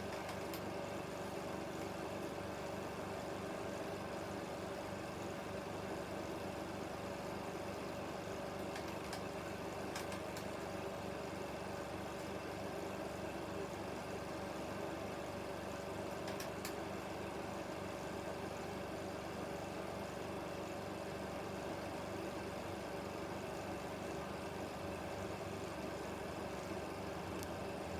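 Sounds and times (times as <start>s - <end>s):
film projector humming: 0.0s - 27.9s
faint projector clicks: 0.1s - 0.7s, 8.7s - 9.3s, 9.9s - 10.6s, 16.2s - 16.8s.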